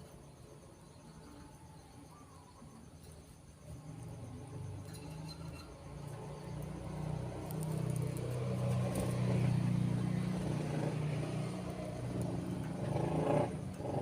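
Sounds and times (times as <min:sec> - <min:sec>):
vehicle engine running: 0:03.8 - 0:14.0.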